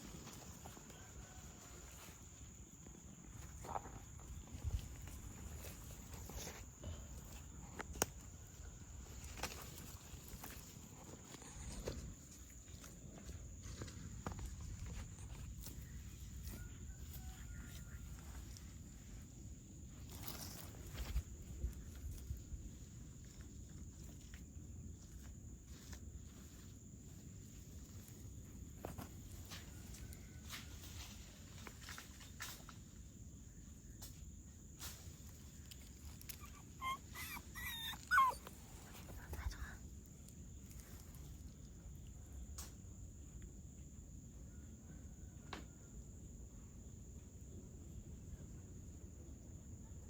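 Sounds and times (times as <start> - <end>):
crickets chirring: 0.0 - 50.0.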